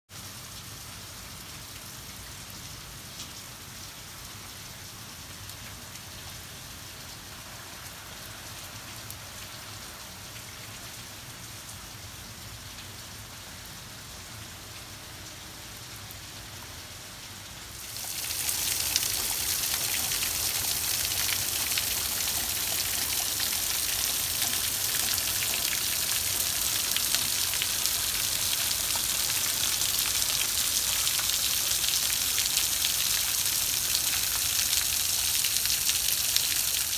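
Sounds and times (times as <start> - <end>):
steady rain on concrete and lawn: 0.1 - 36.9
rainwater pouring off roof: 17.7 - 36.9.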